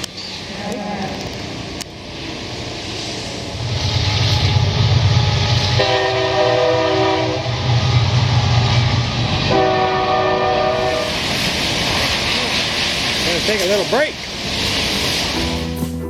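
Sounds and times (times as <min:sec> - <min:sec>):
multi-tone horn blasts: 0:05.7 - 0:07.7, 0:09.5 - 0:11.0.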